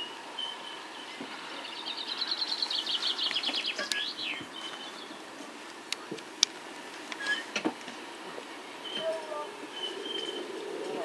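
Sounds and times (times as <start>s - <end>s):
songbird singing a rapid trill: 0.0s - 5.3s, 8.8s - 10.5s.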